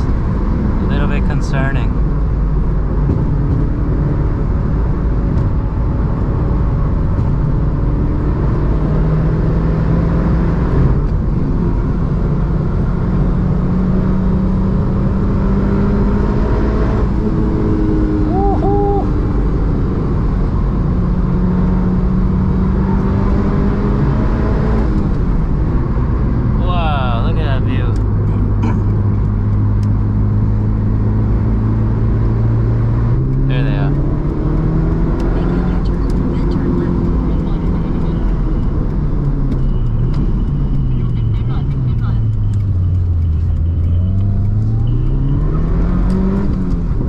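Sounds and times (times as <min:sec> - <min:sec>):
car engine running: 0:00.0 - 0:09.9, 0:10.6 - 0:47.0
road and tyre noise: 0:00.0 - 0:47.0
double chirp: 0:18.3 - 0:19.1.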